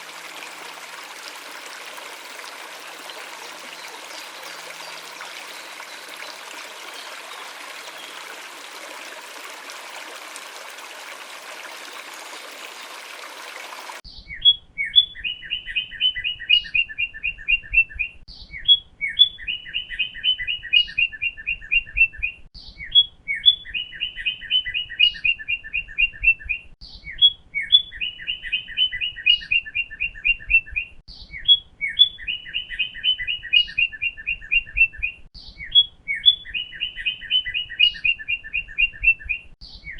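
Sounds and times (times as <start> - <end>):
running water: 0.0 - 14.0.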